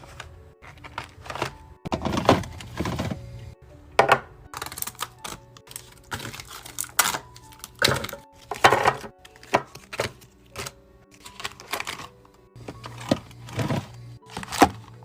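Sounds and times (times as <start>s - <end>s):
faint background music: 0.0s - 15.0s
containers clacking and knocking: 0.6s - 3.3s, 7.7s - 10.2s.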